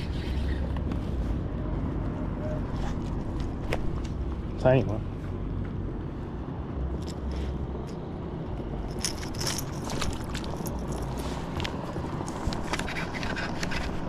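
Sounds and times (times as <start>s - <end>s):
handling clicks and scrapes on kayak: 9.0s - 14.0s.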